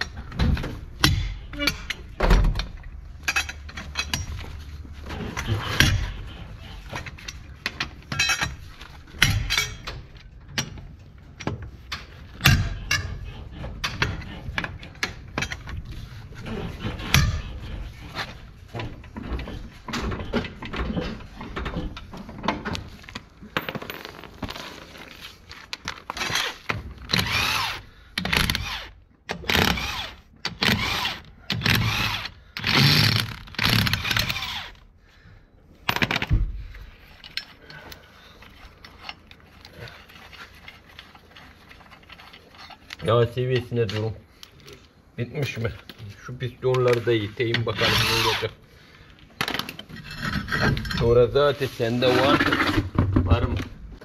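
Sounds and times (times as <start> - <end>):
tools and metal parts clinking: 0.0 - 34.8, 35.8 - 48.4, 49.2 - 52.9.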